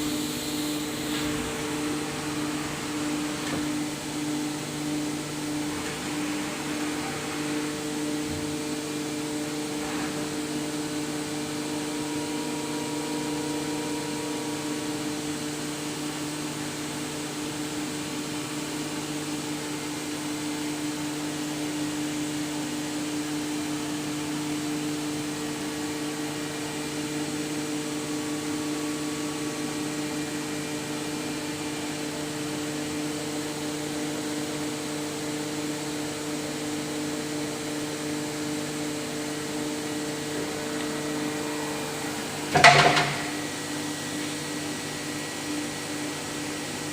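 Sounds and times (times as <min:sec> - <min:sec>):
machining center running: 0:00.0 - 0:10.0, 0:39.2 - 0:45.5.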